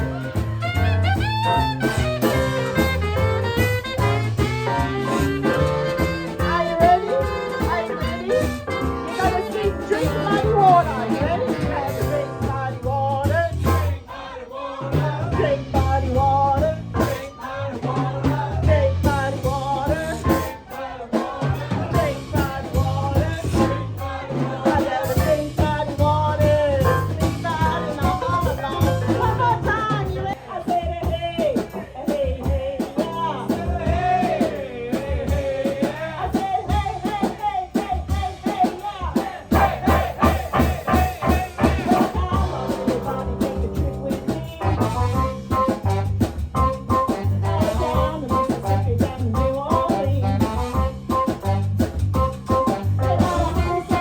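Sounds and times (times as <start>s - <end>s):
bass: 0.0s - 54.0s
drum kit beat: 0.0s - 54.0s
person singing: 4.6s - 13.8s, 39.5s - 46.0s, 46.9s - 51.6s, 52.5s - 54.0s.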